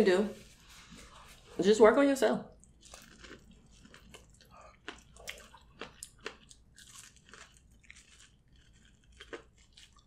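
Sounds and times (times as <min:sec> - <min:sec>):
wet chewing and smacking: 0:02.5 - 0:10.0.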